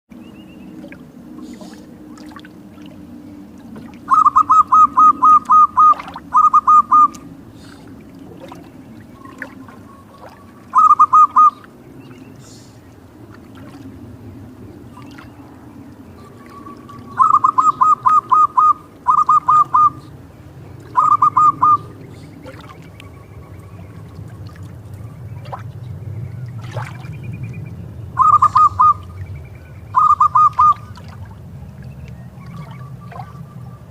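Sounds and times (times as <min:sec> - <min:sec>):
dove cooing: 0:04.0 - 0:08.6, 0:09.2 - 0:11.6, 0:16.2 - 0:20.2, 0:20.8 - 0:22.7, 0:28.2 - 0:29.2, 0:29.9 - 0:31.0.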